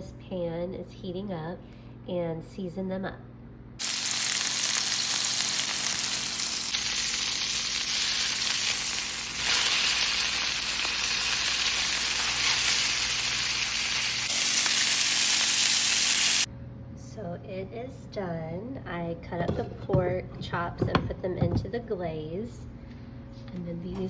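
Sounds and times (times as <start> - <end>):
meat sizzling in a frying pan: 3.8 - 16.5.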